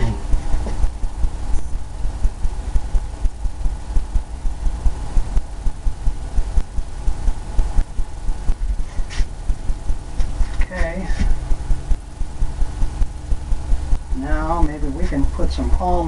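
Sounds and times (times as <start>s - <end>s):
brush thumping on canvas: 8.6s - 9.5s, 10.2s - 11.7s.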